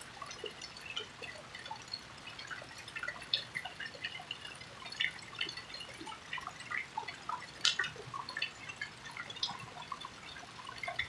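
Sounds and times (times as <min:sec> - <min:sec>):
rain dripping and pattering: 0:00.0 - 0:11.0.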